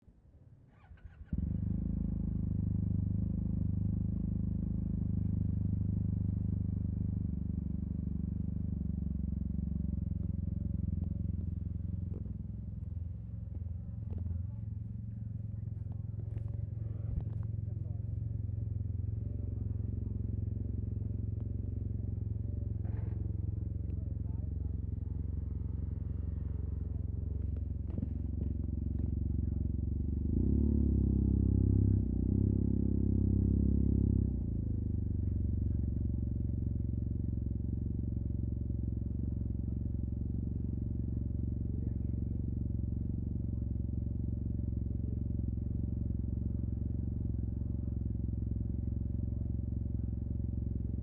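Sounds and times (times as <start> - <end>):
scooter engine starting and idling: 0.7 - 4.1
scooter engine idling: 0.7 - 51.0.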